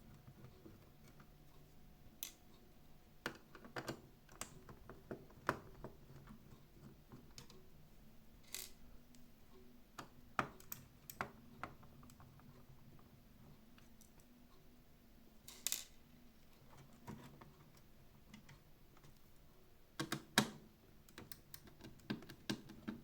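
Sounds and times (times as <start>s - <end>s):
hand tools clicking and tapping: 20.0s - 23.0s.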